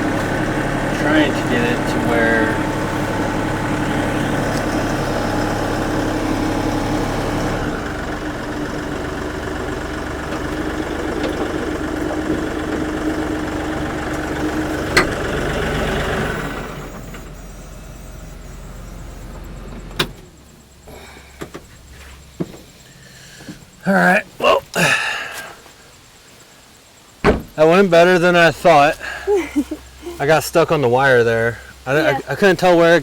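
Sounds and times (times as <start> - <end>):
tractor engine running: 0.0 - 24.4.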